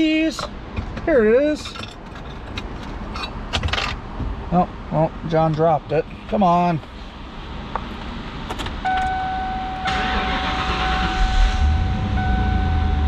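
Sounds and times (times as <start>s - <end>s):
car engine starting and idling: 7.0s - 13.0s
high electronic warning tone: 8.9s - 13.0s.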